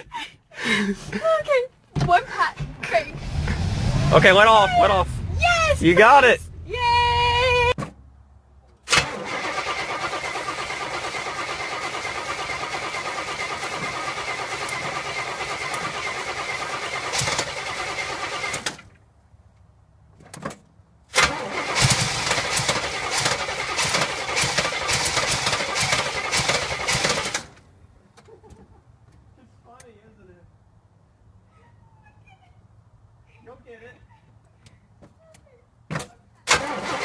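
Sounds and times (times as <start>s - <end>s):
car engine cranking and running: 2.6s - 7.8s, 8.8s - 19.0s, 21.2s - 27.7s, 36.5s - 37.0s.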